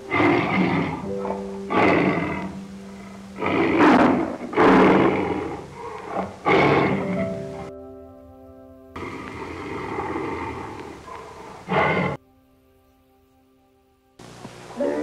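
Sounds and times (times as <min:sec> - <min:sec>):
tiger roaring: 0:00.0 - 0:07.7, 0:09.0 - 0:12.2
background music: 0:00.0 - 0:15.0.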